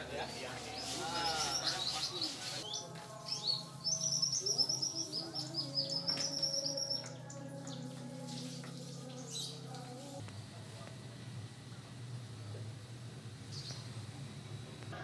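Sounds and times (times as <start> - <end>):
small birds chirping: 0.2 - 10.2, 13.4 - 13.9.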